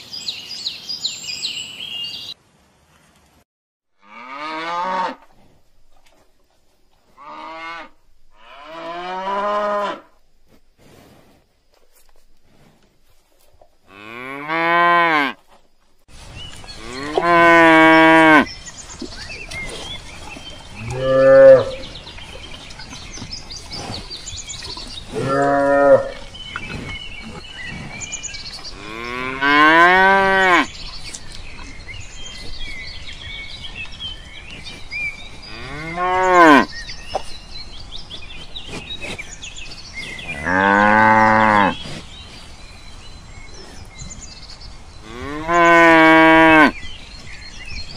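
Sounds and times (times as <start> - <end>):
cows mooing: 4.0 - 5.3, 7.2 - 10.2, 13.9 - 15.4, 16.8 - 18.5, 20.7 - 21.9, 24.9 - 26.3, 28.7 - 30.7, 35.5 - 36.8, 40.3 - 41.8, 45.0 - 46.8.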